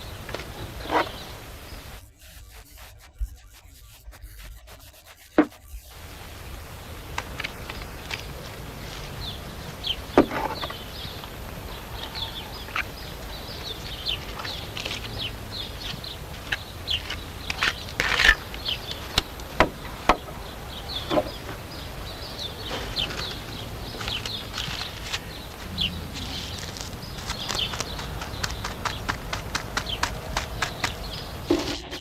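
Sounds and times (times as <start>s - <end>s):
small birds chirping: 0.0s - 4.9s, 5.6s - 32.0s
sharp knocks and taps: 24.0s - 31.8s.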